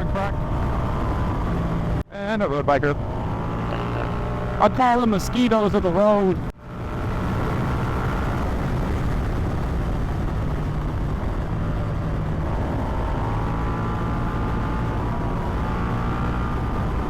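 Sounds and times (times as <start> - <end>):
wind rush: 0.0 - 2.0, 6.2 - 17.0
motorcycle engine running: 2.9 - 17.0.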